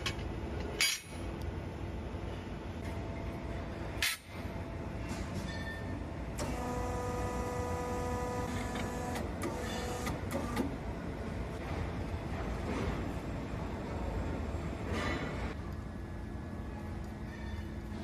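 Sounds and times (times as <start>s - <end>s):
factory machinery rumble: 0.0s - 18.0s.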